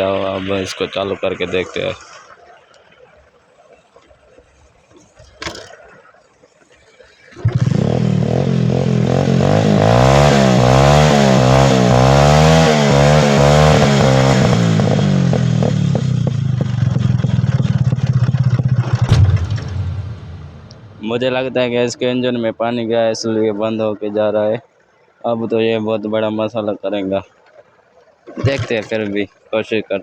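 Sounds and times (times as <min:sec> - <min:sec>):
motorcycle engine revving: 0:07.4 - 0:21.3.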